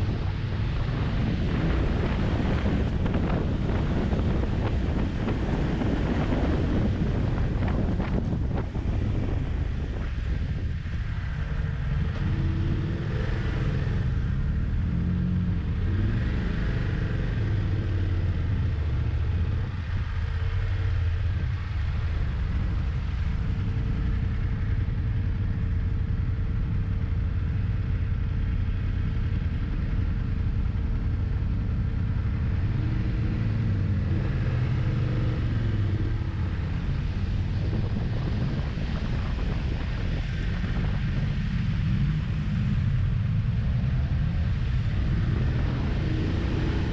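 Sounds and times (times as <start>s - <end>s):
motorcycle engine revving: 28.9s - 46.9s.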